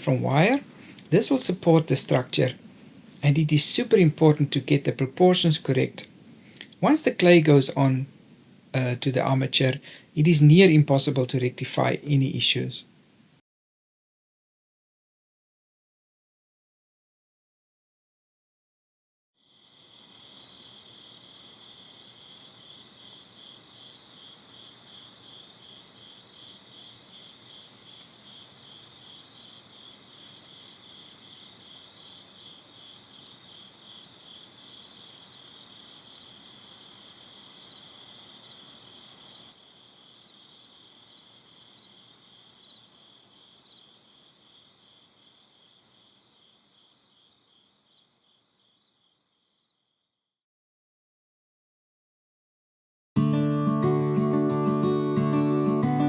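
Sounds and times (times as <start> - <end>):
insects chirping: 0.0 - 7.9, 19.4 - 50.1.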